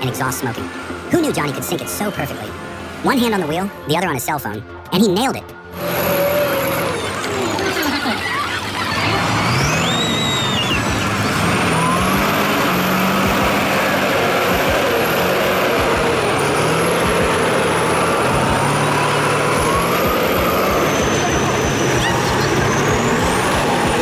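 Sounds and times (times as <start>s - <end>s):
heavy vehicle engine under load: 5.7s - 24.0s
thin high whistle: 9.5s - 11.1s.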